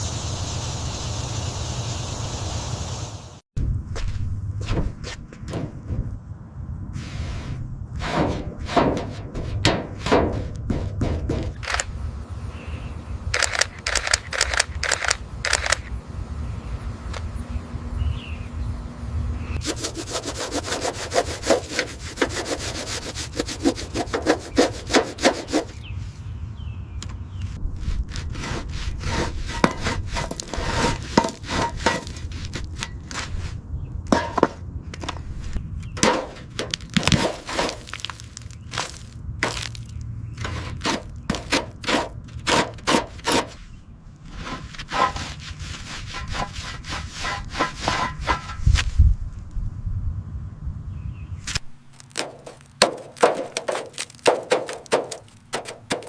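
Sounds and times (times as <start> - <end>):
low steady rumble: 14.5 - 19.7, 48.2 - 51.9
hand tool rasping strokes: 19.6 - 25.8, 28.1 - 33.3, 44.3 - 48.7, 52.2 - 56.0.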